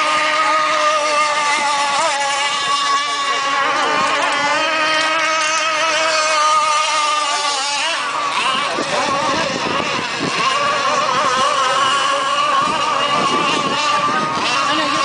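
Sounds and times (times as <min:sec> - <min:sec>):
high-pitched boat engine buzz: 0:00.0 - 0:15.0.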